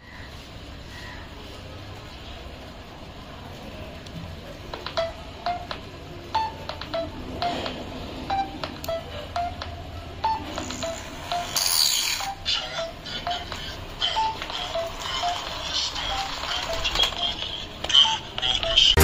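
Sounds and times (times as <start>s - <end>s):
short electronic beeps: 6.3s - 17.3s.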